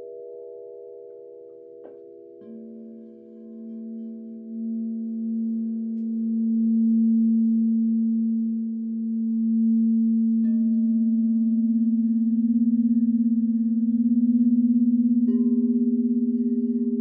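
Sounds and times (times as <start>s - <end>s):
crystal singing bowls ringing: 0.0s - 17.0s
singing bowl struck: 10.3s - 17.0s.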